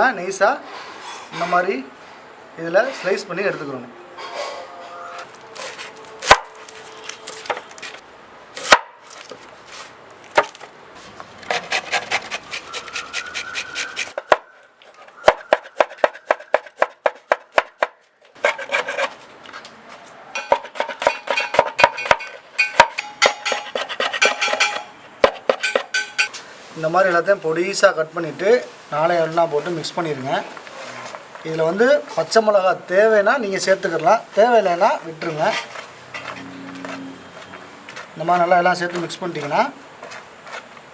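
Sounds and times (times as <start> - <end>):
knife chopping on cutting board: 5.3 - 8.0, 8.6 - 10.6, 15.3 - 19.1, 20.4 - 25.9.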